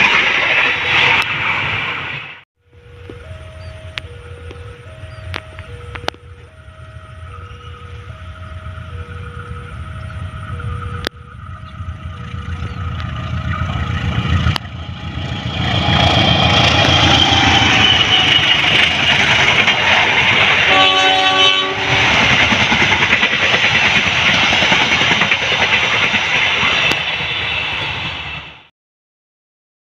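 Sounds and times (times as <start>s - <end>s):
train wheels rushing on rail: 0.0s - 2.4s, 3.2s - 28.7s
train horn blast: 15.7s - 19.2s, 20.5s - 22.5s.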